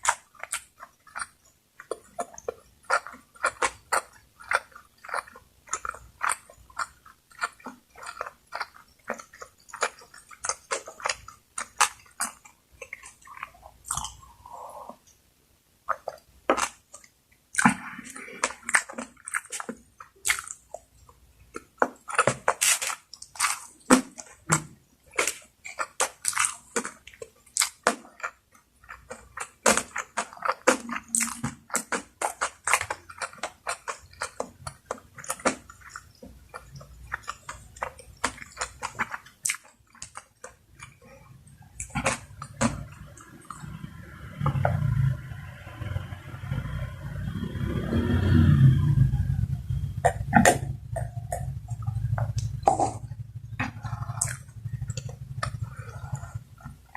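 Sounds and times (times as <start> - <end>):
person chewing food: 0.0 - 56.9.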